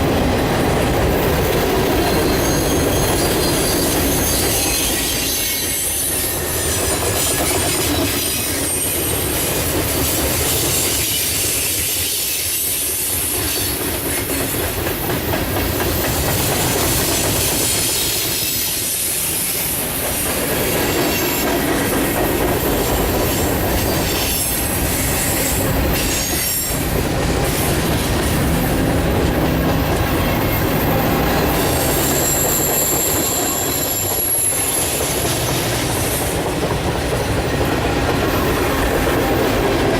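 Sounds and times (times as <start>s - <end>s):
train wheels clacking over rails: 0.0s - 39.9s
high-pitched wheel squeal: 2.0s - 9.3s, 30.1s - 35.6s.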